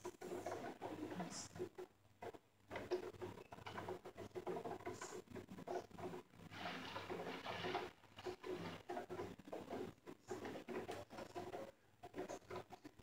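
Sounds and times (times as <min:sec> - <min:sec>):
rain pattering on a window: 0:00.0 - 0:13.0.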